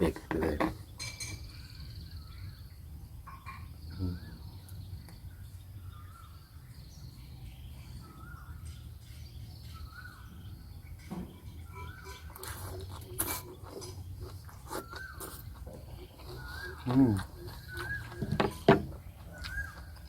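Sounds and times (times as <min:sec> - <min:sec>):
birdsong warbling whistles: 0:01.3 - 0:20.0.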